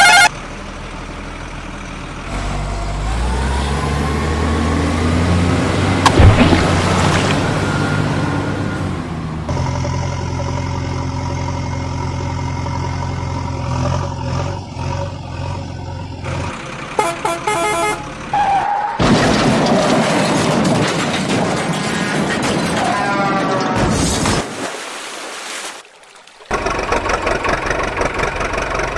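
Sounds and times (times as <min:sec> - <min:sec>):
horn honking: 0:00.0 - 0:00.4, 0:16.9 - 0:18.8
heavy vehicle engine running: 0:00.0 - 0:18.4, 0:26.5 - 0:28.9
loud rumbling: 0:05.8 - 0:15.6.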